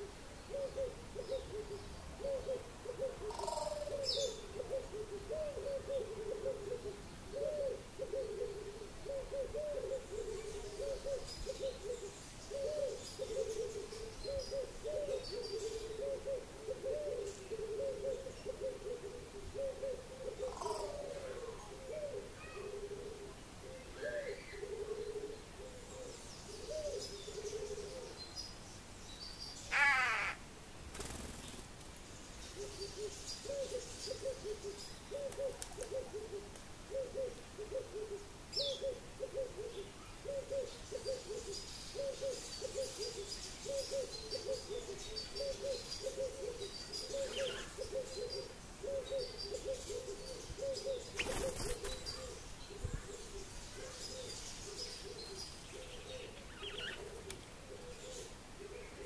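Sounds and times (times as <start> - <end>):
small birds chirping faintly: 0.0 - 59.0
bird calling short low notes: 29.7 - 30.4
loud short bird call: 29.7 - 30.4.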